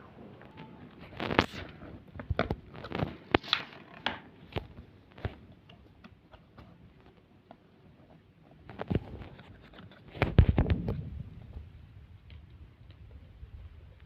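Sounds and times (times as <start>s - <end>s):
paper rustling and creasing: 0.9s - 5.4s.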